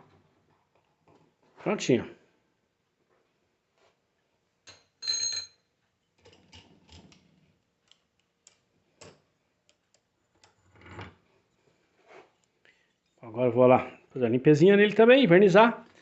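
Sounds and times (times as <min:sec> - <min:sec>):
light clicks and taps: 0:07.8 - 0:10.6.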